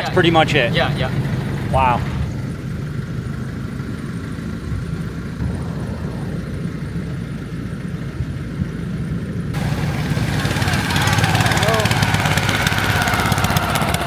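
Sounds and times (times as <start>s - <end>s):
boat engine droning: 0.0s - 14.0s
hiss of wind or water: 5.4s - 7.5s.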